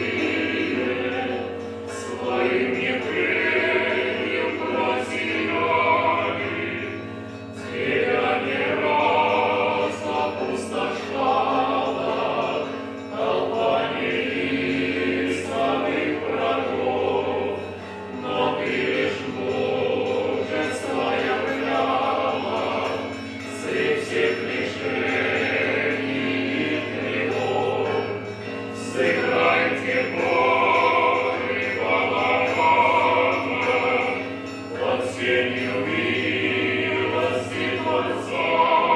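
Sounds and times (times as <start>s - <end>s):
choir singing: 0.0s - 38.9s
low drone: 0.0s - 38.9s.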